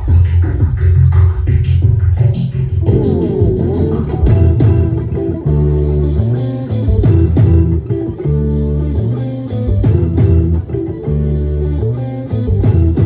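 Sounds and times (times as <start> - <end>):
steady drum beat: 0.0 - 6.3
bass guitar: 0.0 - 13.0
electric guitar: 2.1 - 13.0.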